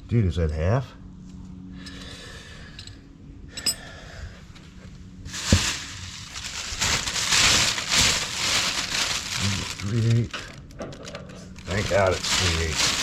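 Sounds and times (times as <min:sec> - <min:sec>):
metal parts rustling and rattling: 0:05.3 - 0:13.0.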